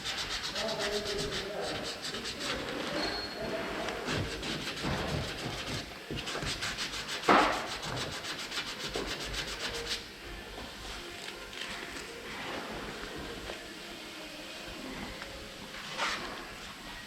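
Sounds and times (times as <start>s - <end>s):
sanding filler rasping: 0.0s - 2.9s, 4.0s - 10.1s.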